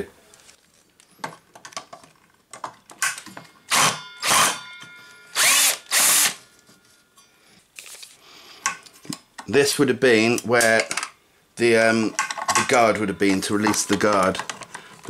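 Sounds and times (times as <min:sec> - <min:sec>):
electric drill-driver running: 0:03.7 - 0:04.6, 0:05.4 - 0:06.4.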